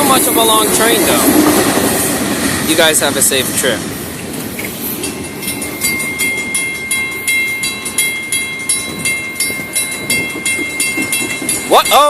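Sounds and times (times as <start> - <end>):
crossing bell ringing: 0.0 - 1.2, 4.7 - 12.0
freight train rolling on rails: 0.0 - 12.0.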